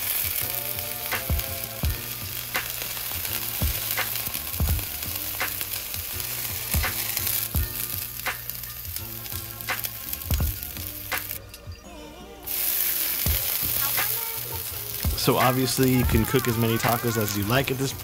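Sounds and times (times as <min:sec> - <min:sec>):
taco sizzling in a hot pan: 0:00.0 - 0:11.4, 0:12.4 - 0:18.0
low thumps: 0:01.2 - 0:08.5.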